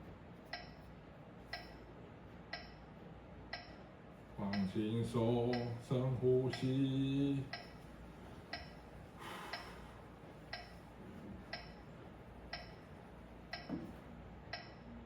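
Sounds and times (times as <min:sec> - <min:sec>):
metronome ticking: 0:00.5 - 0:00.8, 0:01.5 - 0:01.8, 0:02.5 - 0:02.8, 0:03.5 - 0:03.8, 0:05.4 - 0:05.8, 0:07.5 - 0:07.8, 0:08.5 - 0:08.8, 0:10.5 - 0:10.8, 0:11.5 - 0:11.8, 0:12.5 - 0:12.8, 0:13.5 - 0:13.7, 0:14.5 - 0:14.8
soft breath: 0:09.2 - 0:10.2.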